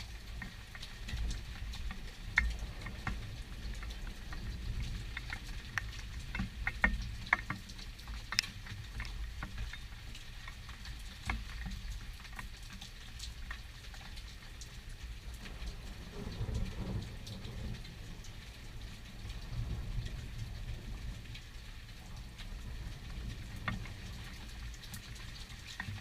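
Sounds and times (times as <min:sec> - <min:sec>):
raindrops pattering: 0:00.0 - 0:26.0
low thunder rumble: 0:15.3 - 0:24.7.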